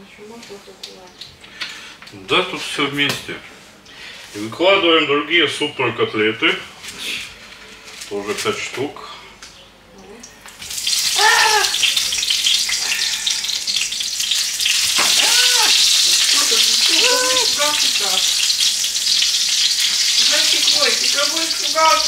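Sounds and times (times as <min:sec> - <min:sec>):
cutlets sizzling in hot oil: 0:10.2 - 0:22.0.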